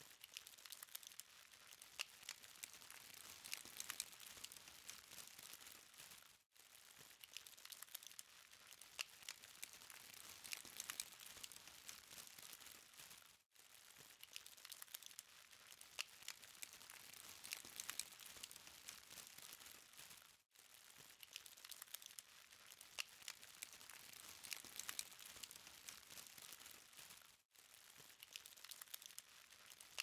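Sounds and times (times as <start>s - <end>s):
burning charcoal crackling: 8.4s - 13.2s, 13.9s - 20.2s, 20.9s - 27.2s.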